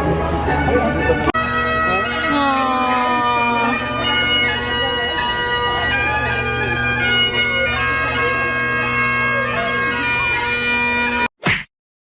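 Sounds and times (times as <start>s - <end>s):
bagpipes playing: 0.6s - 11.3s
voices talking: 1.8s - 10.6s.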